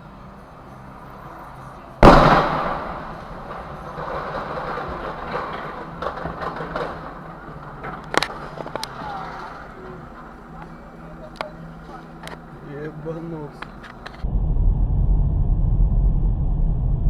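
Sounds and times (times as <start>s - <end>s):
vehicle crash: 2.0s - 10.3s
rattling and scraping: 3.0s - 10.0s.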